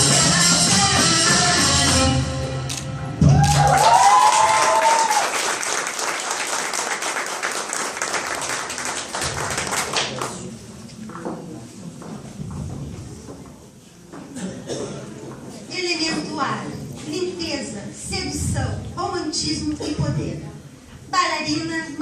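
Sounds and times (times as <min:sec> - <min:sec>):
cheering shouts: 0:03.3 - 0:05.4
audience applauding: 0:03.3 - 0:10.5.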